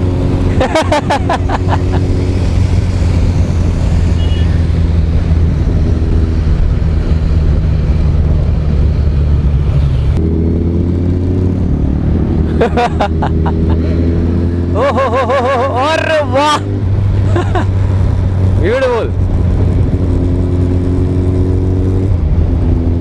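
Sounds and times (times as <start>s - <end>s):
wind rush on microphone: 0.0s - 10.3s, 16.6s - 23.0s
motorcycle engine running: 0.0s - 23.0s.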